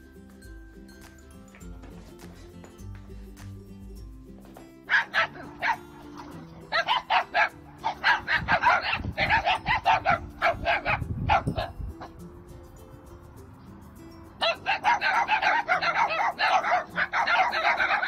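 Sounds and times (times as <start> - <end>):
background music: 0.0 - 18.0
dogs barking: 4.8 - 12.2, 14.4 - 18.0.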